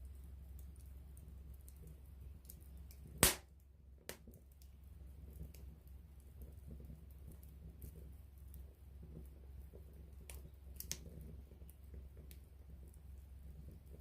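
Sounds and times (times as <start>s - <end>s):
campfire crackling: 0.0s - 14.0s
fire popping: 0.0s - 14.0s.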